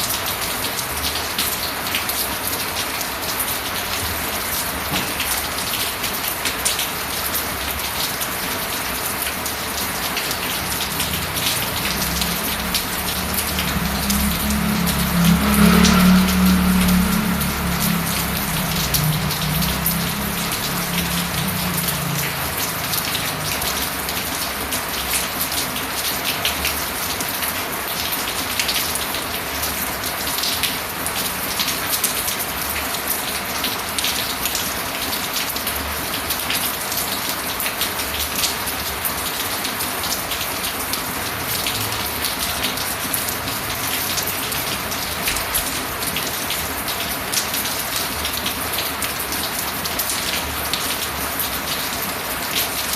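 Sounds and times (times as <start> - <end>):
rain pattering: 0.0 - 52.9
low hum: 10.9 - 22.5.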